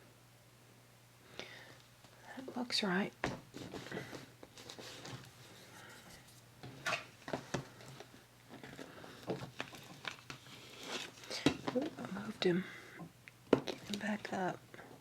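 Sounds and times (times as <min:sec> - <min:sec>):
paper rustling: 0:03.5 - 0:11.9.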